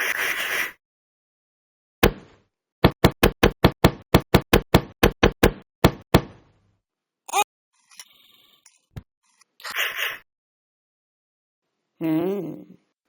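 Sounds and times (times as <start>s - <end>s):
knocking on hard surface: 2.0s - 6.4s.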